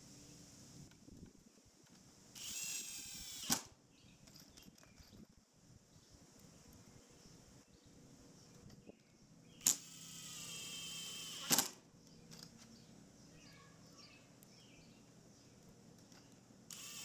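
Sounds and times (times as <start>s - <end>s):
power drill running: 2.4s - 3.7s, 9.6s - 11.8s, 16.7s - 17.0s.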